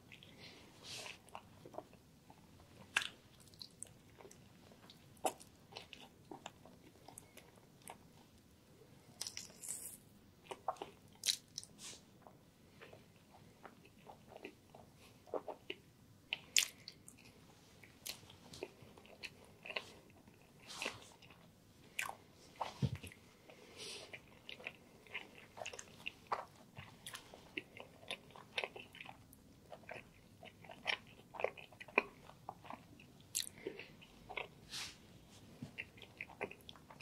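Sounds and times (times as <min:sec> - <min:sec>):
chewing sandwich: 0:09.0 - 0:34.7, 0:35.4 - 0:37.0.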